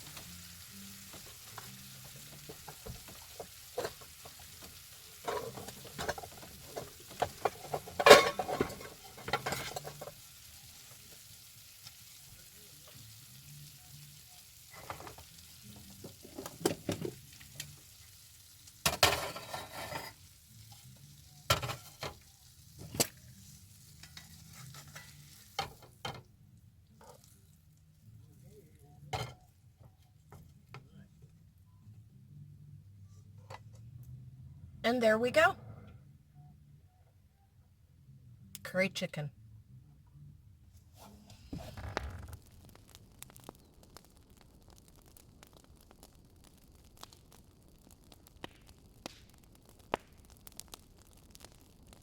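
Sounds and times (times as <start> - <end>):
utensil scraping in a pan: 0.0 - 11.2, 18.8 - 26.0, 26.9 - 27.6, 40.9 - 44.4
faint sizzle: 0.0 - 34.2, 40.2 - 52.0.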